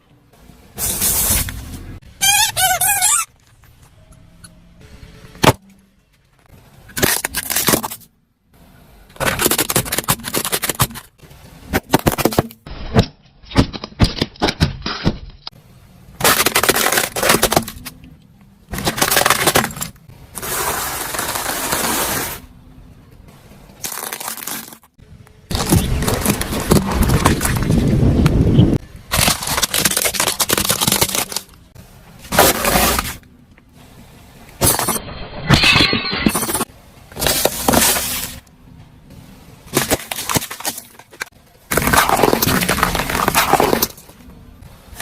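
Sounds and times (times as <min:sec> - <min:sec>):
objects cracking and crunching: 0:06.9 - 0:08.1, 0:09.2 - 0:15.6, 0:16.2 - 0:21.9, 0:23.7 - 0:28.4, 0:29.1 - 0:33.3, 0:39.7 - 0:44.3.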